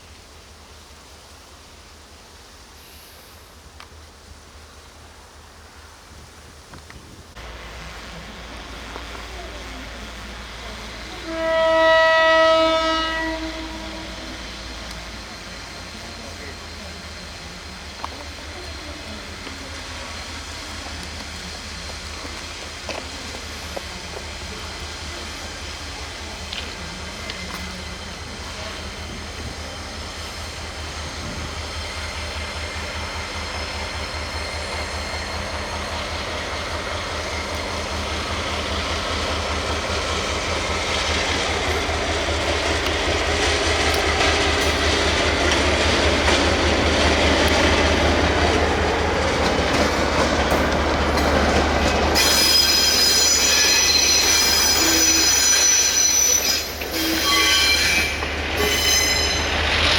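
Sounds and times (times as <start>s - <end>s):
train rolling on track: 0.0s - 59.9s
high-pitched wheel squeal: 52.2s - 59.8s.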